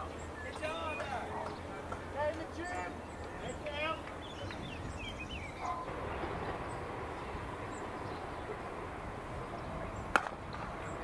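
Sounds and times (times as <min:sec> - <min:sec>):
birds chirping: 0:00.0 - 0:11.0
low outdoor rumble: 0:00.0 - 0:11.0.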